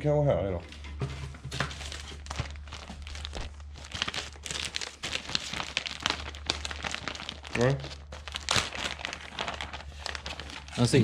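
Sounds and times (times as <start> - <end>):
packaging rustling and crinkling: 0.8 - 11.0.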